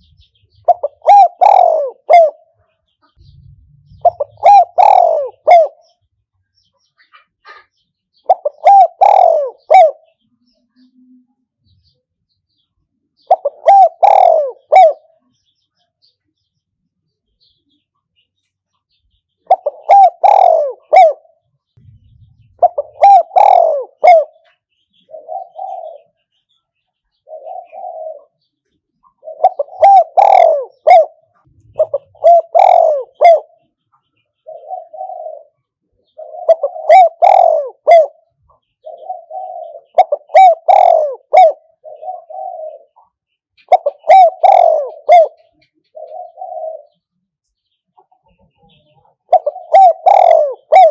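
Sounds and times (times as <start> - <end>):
dove cooing: 0.0 - 6.0, 7.1 - 10.2, 13.2 - 15.2, 19.4 - 26.4, 27.1 - 33.8, 34.4 - 47.1, 48.0 - 50.9.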